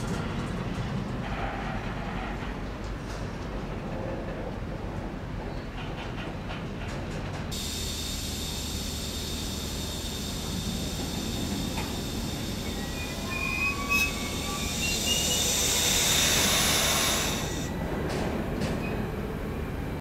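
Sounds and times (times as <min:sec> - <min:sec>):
train wheels rumbling: 0:05.7 - 0:20.0
air hissing: 0:07.5 - 0:17.7
brake squeals: 0:07.6 - 0:17.7.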